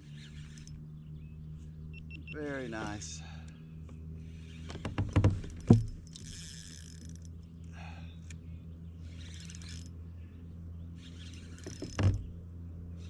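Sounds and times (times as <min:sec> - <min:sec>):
fishing reel cranking: 0:00.0 - 0:00.8, 0:04.2 - 0:07.4, 0:09.0 - 0:10.0, 0:11.0 - 0:12.2
low hum: 0:00.0 - 0:13.0.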